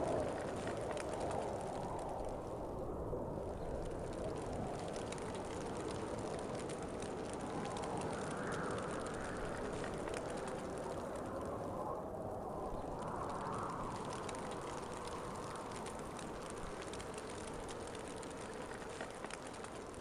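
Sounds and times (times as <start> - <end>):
faint scattered ticks: 0.0 - 20.0
wind blowing: 0.0 - 20.0.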